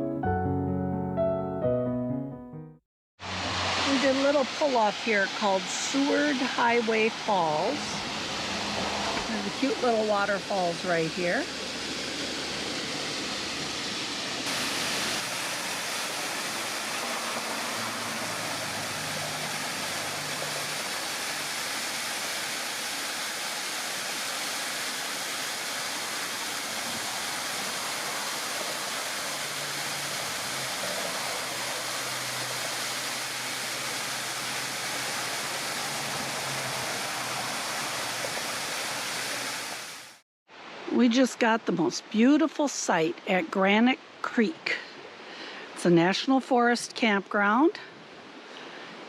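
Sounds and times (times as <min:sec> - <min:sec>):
waterfall splashing: 0:03.2 - 0:40.2.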